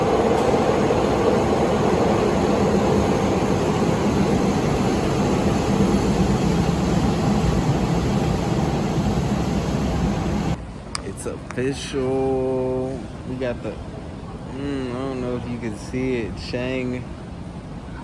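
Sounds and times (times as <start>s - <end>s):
moving train rumbling: 0.0s - 10.6s.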